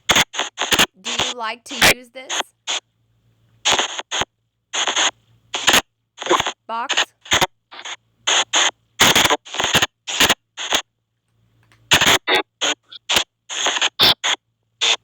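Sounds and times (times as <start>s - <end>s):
chopped white noise bursts: 0.0s - 2.8s, 3.6s - 10.9s
radio-like fragments: 0.1s - 2.8s, 3.7s - 10.8s, 11.9s - 15.0s.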